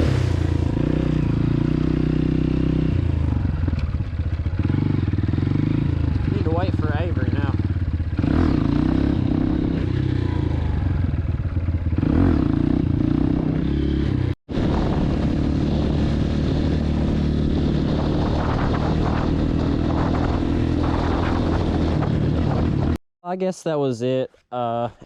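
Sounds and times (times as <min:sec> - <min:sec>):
dirt bike engine idling: 0:00.0 - 0:17.1.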